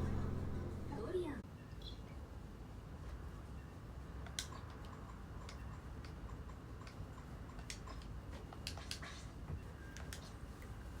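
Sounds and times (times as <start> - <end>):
low room hum: 0.0 - 3.6.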